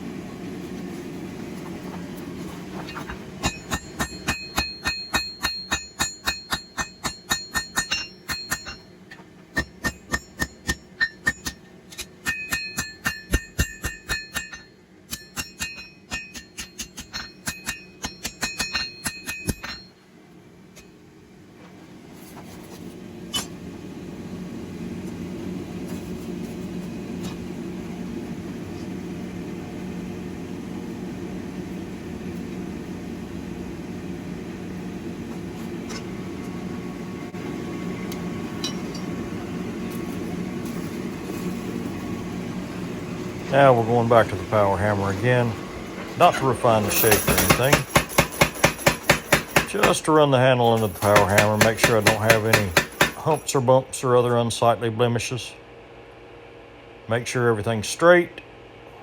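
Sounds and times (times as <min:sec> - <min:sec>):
steady low hum: 0:00.0 - 0:59.0
hammer striking steel on anvil: 0:03.4 - 0:20.0, 0:38.6 - 0:39.1, 0:46.8 - 0:50.1, 0:50.8 - 0:53.4.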